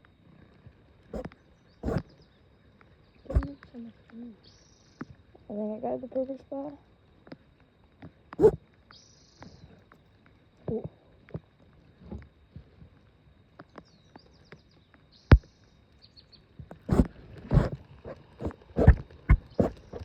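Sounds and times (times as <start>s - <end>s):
bird chirping: 1.2s - 2.4s, 3.1s - 3.8s.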